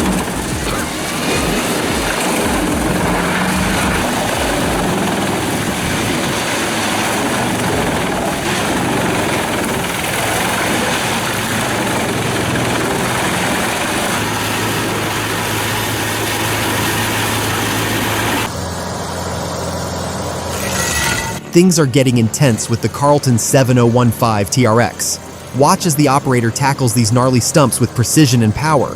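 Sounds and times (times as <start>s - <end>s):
low engine hum: 0.0s - 20.5s
machine rushing noise: 0.0s - 26.3s.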